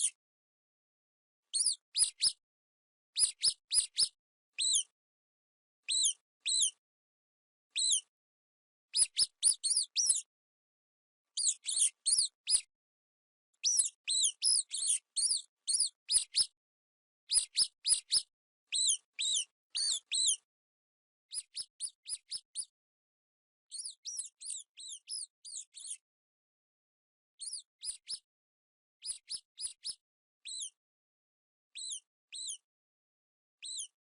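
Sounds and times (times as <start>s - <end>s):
mice squeaking: 1.5s - 2.4s, 5.9s - 6.8s, 9.0s - 10.3s, 11.4s - 12.7s, 13.6s - 16.6s, 17.3s - 20.4s, 21.3s - 22.7s, 23.7s - 26.0s, 27.4s - 28.2s, 31.8s - 32.6s, 33.6s - 34.0s.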